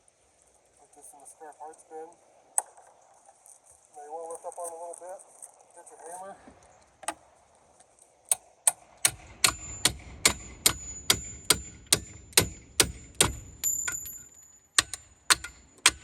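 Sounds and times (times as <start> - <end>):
hammer striking metal: 8.7 - 16.0.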